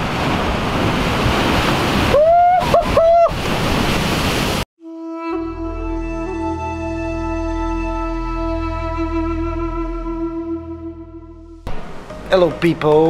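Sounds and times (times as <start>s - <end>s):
music: 4.8s - 13.0s.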